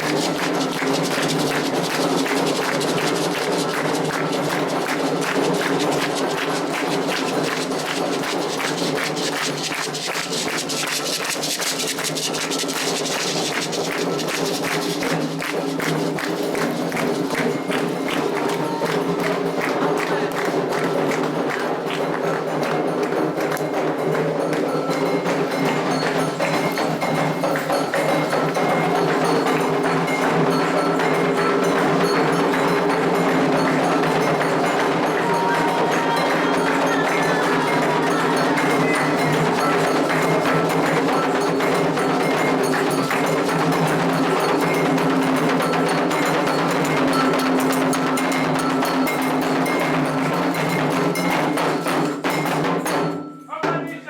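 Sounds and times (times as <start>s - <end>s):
fast drumming: 0.0s - 54.0s
struck bell pattern: 24.4s - 54.0s.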